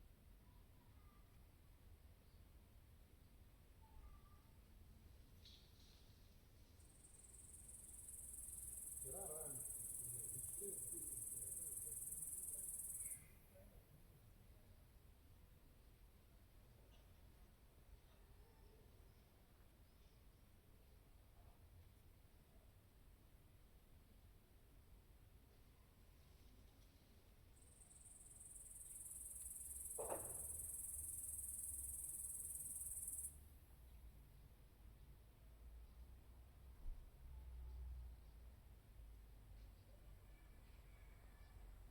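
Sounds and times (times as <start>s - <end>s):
insect trilling buzz: 7.9s - 13.0s, 28.3s - 33.3s.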